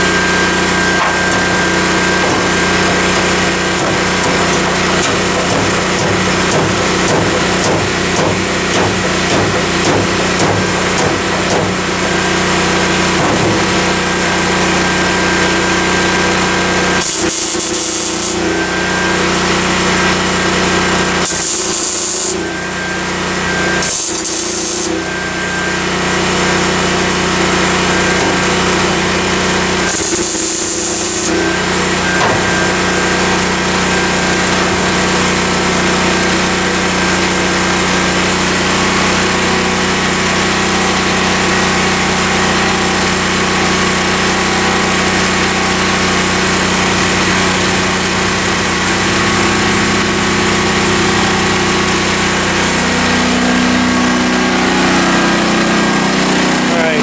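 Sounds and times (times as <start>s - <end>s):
angle grinder grinding metal: 0.0s - 57.0s
sharp high hiss bursts: 21.3s - 22.4s.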